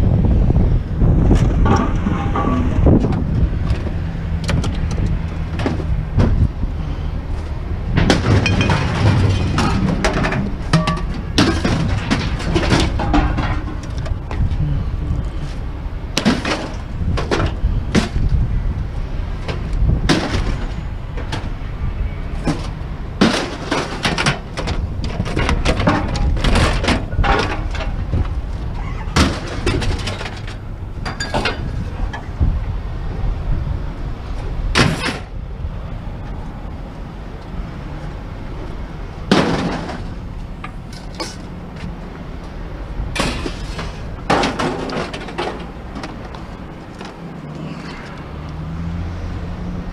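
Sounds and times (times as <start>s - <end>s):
steady low rumble: 0.0s - 20.2s, 24.5s - 47.5s
hard objects knocking and clanking: 1.3s - 6.4s, 7.9s - 14.6s, 22.4s - 28.4s, 43.2s - 47.2s.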